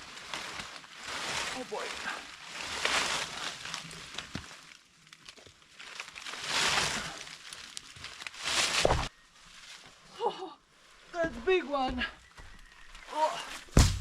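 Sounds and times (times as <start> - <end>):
dry leaves rustling and crunching: 0.0 - 10.1.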